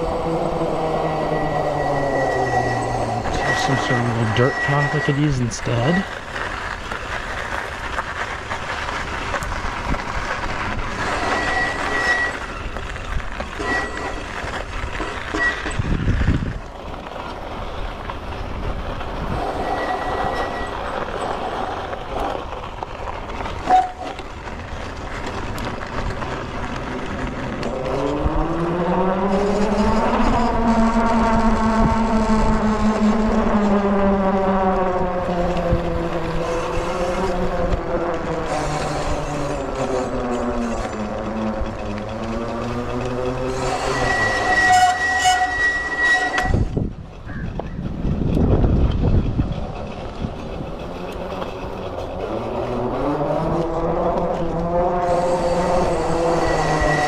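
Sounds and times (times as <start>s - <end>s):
electric motor whine: 0.0s - 6.3s, 25.2s - 46.8s, 51.0s - 57.0s
dirt bike rattling over rough ground: 0.0s - 57.0s.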